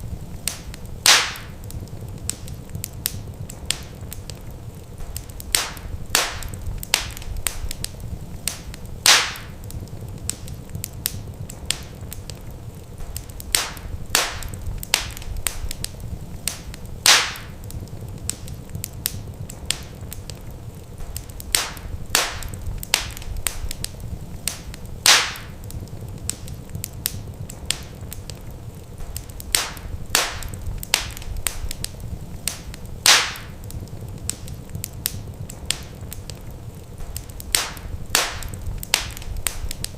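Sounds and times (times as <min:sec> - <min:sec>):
low steady rumble of fire: 0:00.0 - 0:39.9
wood fire crackling: 0:00.0 - 0:39.9
loud fire pop: 0:00.5 - 0:01.6, 0:05.0 - 0:09.6, 0:13.0 - 0:15.9, 0:16.5 - 0:17.6, 0:21.0 - 0:23.9, 0:24.5 - 0:25.6, 0:29.0 - 0:33.6, 0:37.0 - 0:39.9.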